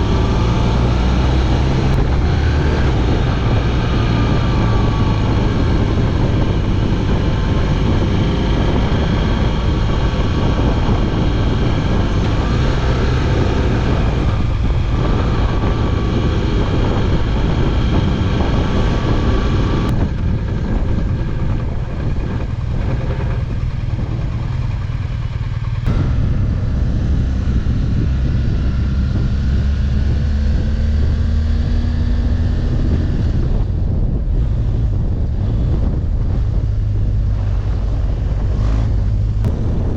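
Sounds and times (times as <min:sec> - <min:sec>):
motorcycle engine running: 0:00.0 - 0:39.9
wind rush: 0:00.0 - 0:39.9.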